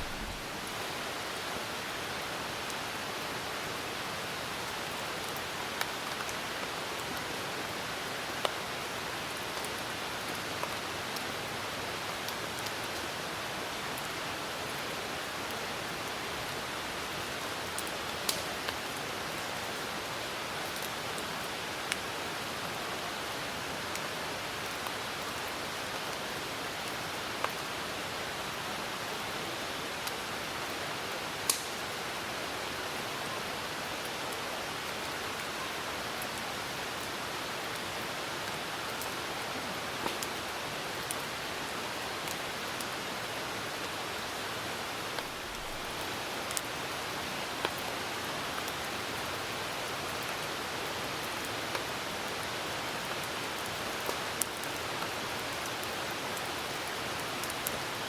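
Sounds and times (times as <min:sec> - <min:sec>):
campfire wood popping: 0:00.0 - 0:00.5, 0:31.5 - 0:31.8
rain hissing: 0:00.0 - 0:01.1.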